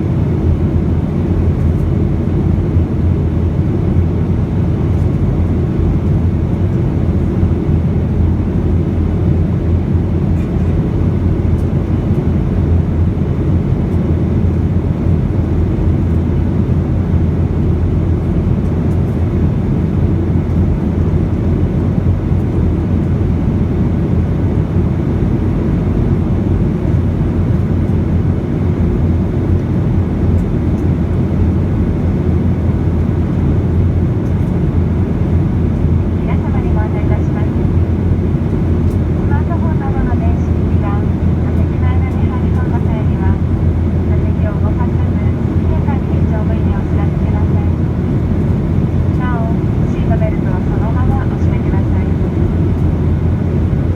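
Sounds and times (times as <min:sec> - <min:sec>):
airplane cabin engine drone: 0:00.0 - 0:53.9.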